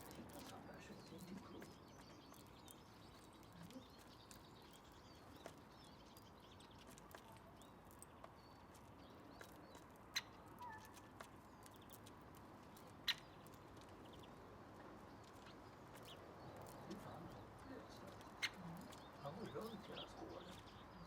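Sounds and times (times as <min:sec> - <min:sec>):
faint distant bird chirping: 0:00.0 - 0:21.0.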